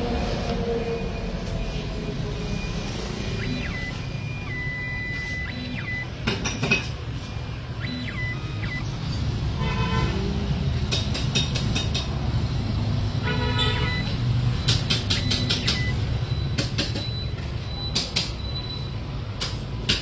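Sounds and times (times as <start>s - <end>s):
street traffic rumble: 0.0s - 20.0s
vehicle horn: 9.5s - 10.4s, 13.2s - 14.2s
sharp clicks: 14.6s - 16.0s.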